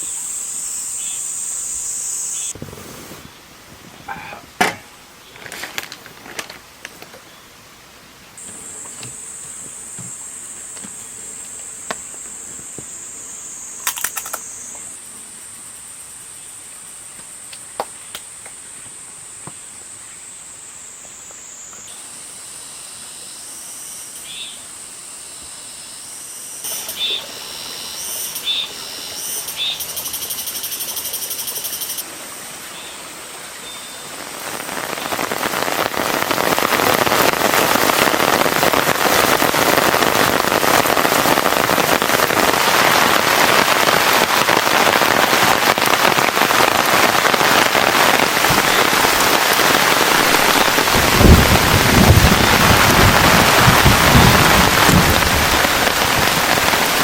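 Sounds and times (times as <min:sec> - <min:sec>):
insects calling: 0:00.0 - 0:06.0, 0:06.7 - 0:57.0
frogs calling: 0:21.6 - 0:57.0
heavy rain downpour: 0:29.4 - 0:57.0.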